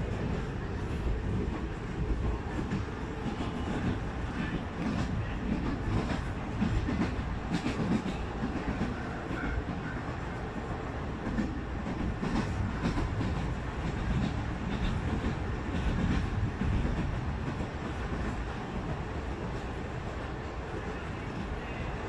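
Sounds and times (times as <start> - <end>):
train rumble from cab: 0.0 - 22.0.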